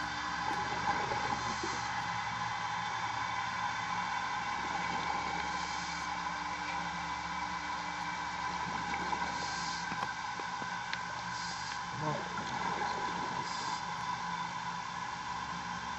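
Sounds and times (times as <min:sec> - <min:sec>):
steady mechanical hum: 0:00.0 - 0:15.9
hiss: 0:05.4 - 0:06.2, 0:09.3 - 0:10.0, 0:11.3 - 0:11.9, 0:13.4 - 0:13.9.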